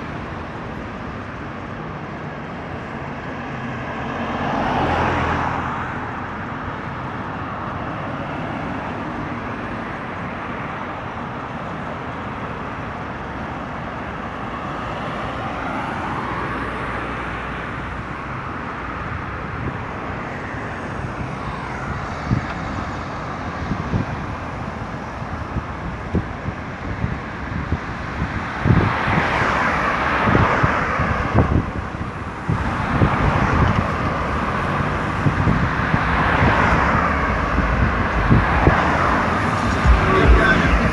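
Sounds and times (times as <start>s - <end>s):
cars passing on highway: 0.0s - 40.9s
short low thumps: 35.4s - 40.9s.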